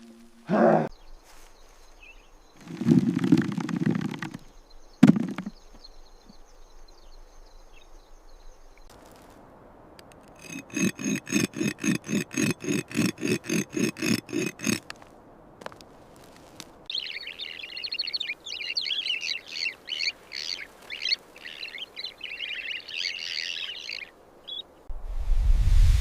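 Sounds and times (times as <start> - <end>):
hand tool scraping earth: 2.6 - 4.4, 5.0 - 5.6, 10.1 - 16.9.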